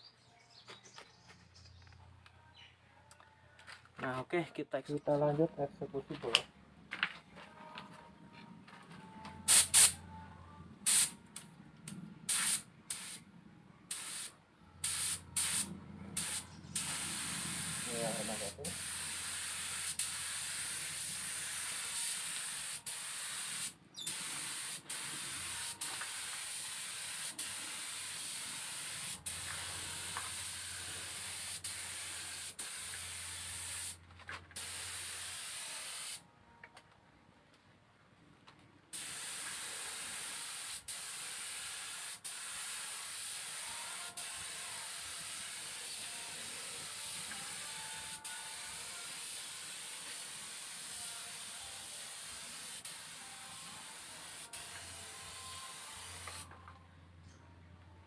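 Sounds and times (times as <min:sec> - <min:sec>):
low hum: 0:06.5 - 0:14.8
spray gun hissing: 0:09.5 - 0:10.0, 0:10.9 - 0:11.2, 0:12.3 - 0:13.2, 0:13.9 - 0:34.0, 0:34.6 - 0:36.2, 0:39.0 - 0:56.4.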